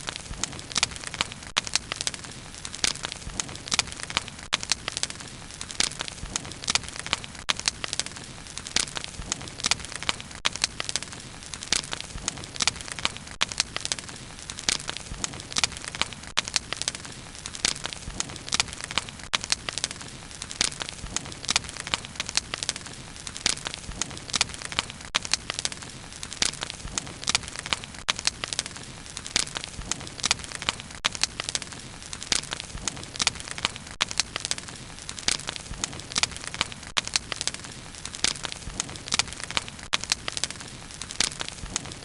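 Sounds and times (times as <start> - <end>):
bonfire crackling: 0.0 - 42.0.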